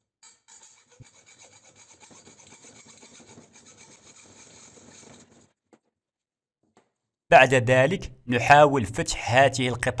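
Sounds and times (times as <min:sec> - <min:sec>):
saw rasping through copper tube: 0:00.0 - 0:05.6.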